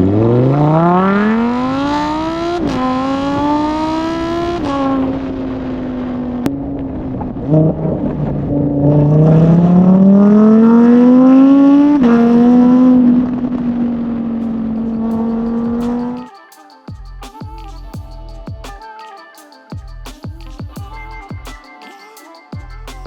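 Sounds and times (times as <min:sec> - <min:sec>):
sports car engine accelerating: 0:00.0 - 0:16.2.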